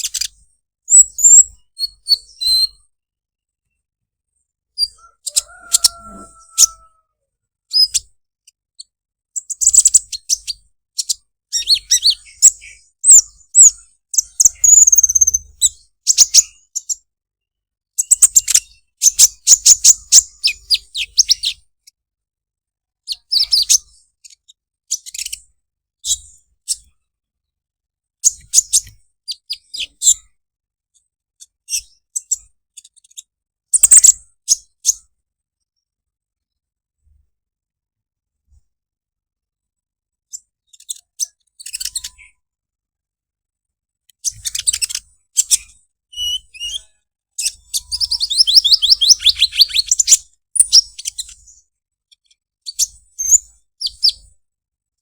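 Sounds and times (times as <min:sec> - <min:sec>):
bird chattering chirps: 0:00.0 - 0:02.7, 0:04.8 - 0:07.0, 0:09.4 - 0:17.0, 0:33.8 - 0:35.0, 0:47.4 - 0:51.3.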